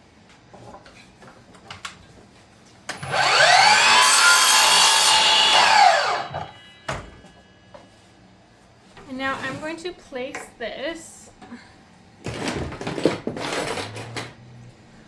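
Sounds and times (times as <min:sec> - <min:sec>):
miter saw whining: 0:02.9 - 0:06.6.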